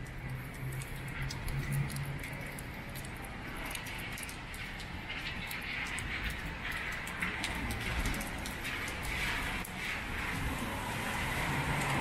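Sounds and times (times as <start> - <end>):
rain pattering on street: 0.0 - 12.0.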